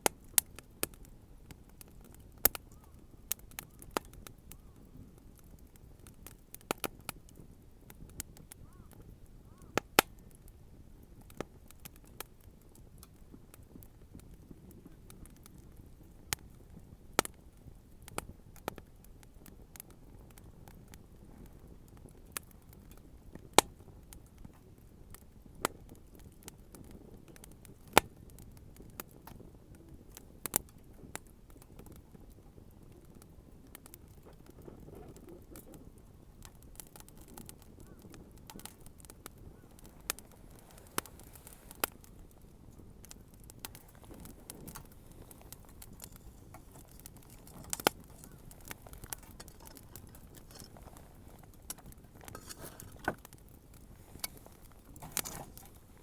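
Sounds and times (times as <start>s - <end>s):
bonfire crackling pops: 0.0s - 56.0s
low rush of burning: 38.4s - 56.0s.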